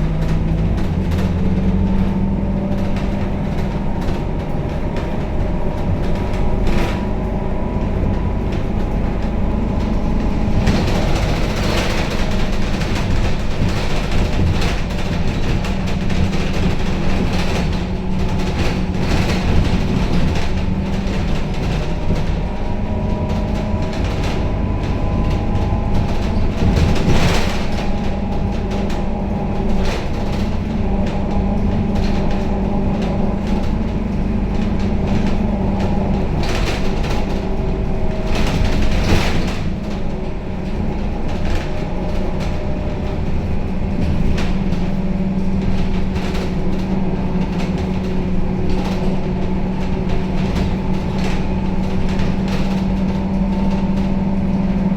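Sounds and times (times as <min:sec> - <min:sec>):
bus body rattling: 0:00.0 - 0:54.9
bus engine hum: 0:00.0 - 0:54.9
bus jolts: 0:00.0 - 0:54.9
road noise: 0:00.0 - 0:54.9.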